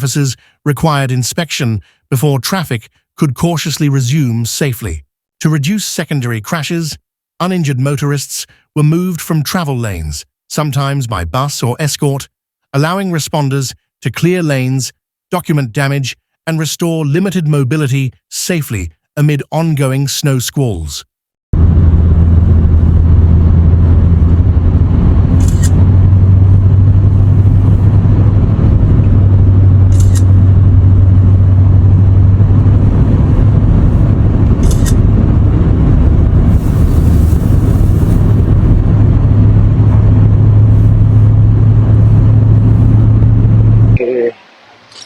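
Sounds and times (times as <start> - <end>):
road noise: 21.6 - 45.0
vehicle engine hum: 21.6 - 45.0.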